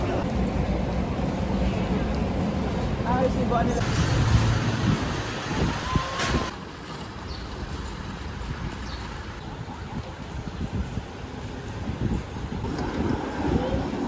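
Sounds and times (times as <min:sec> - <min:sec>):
road traffic rumble: 0:00.0 - 0:09.7.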